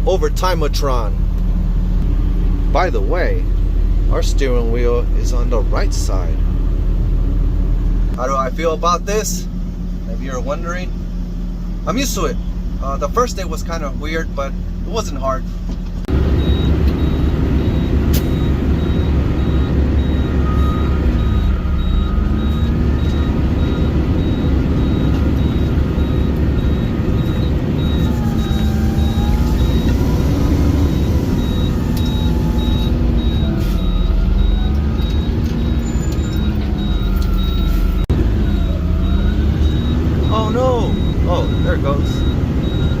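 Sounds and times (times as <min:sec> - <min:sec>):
garbage truck engine idling: 0:15.5 - 0:43.0
machine engine rising and falling: 0:16.1 - 0:43.0
reversing alarm beeping: 0:16.2 - 0:43.0.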